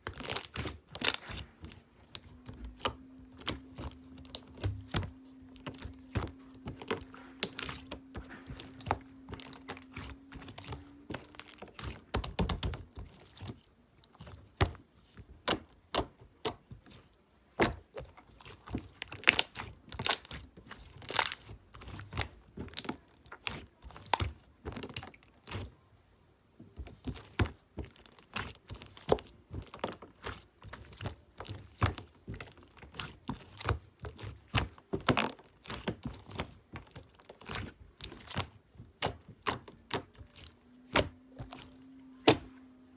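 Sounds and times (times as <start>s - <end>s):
faint steady hum: 36.1s - 42.9s.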